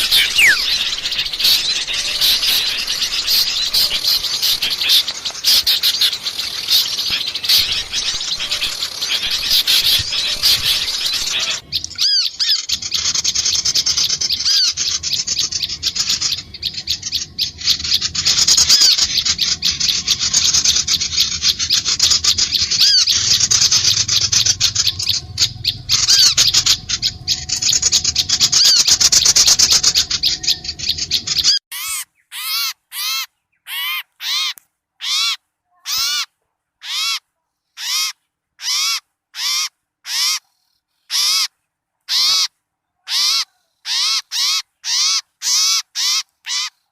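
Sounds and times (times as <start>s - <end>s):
chorus of small birds chattering: 0.0s - 31.9s
harsh bird call: 0.0s - 35.3s.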